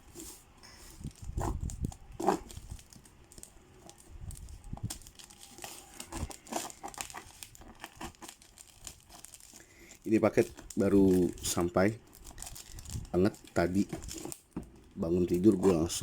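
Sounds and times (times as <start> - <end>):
packaging crinkling and tearing: 0.9 - 16.0.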